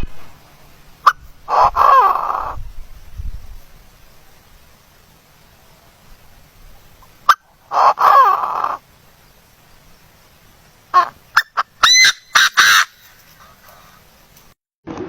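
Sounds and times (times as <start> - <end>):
wavering bird call: 1.0 - 2.6, 6.9 - 8.8, 10.9 - 14.2
short sharp bird calls: 10.9 - 14.4.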